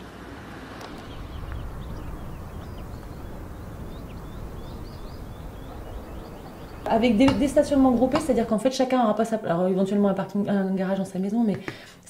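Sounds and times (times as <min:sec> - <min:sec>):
low outdoor rumble: 0:00.0 - 0:11.0
small birds chirping: 0:00.8 - 0:08.6.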